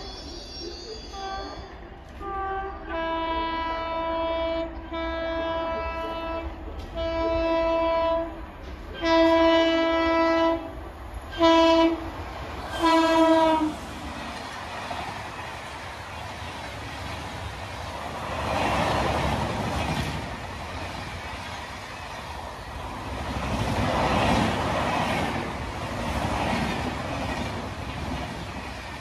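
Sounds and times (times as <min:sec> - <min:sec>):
train rushing past: 0:00.0 - 0:29.0
locomotive horn blasts: 0:01.1 - 0:12.1, 0:12.7 - 0:13.8.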